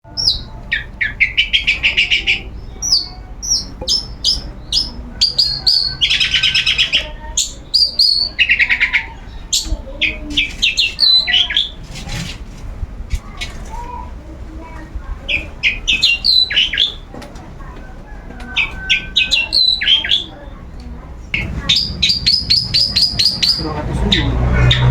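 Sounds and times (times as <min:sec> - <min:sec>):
bird singing high chips and whistles: 0:00.1 - 0:09.8, 0:10.4 - 0:11.8, 0:15.6 - 0:17.0, 0:18.6 - 0:20.3, 0:21.4 - 0:24.9
bird scratchy rattles: 0:00.7 - 0:23.6.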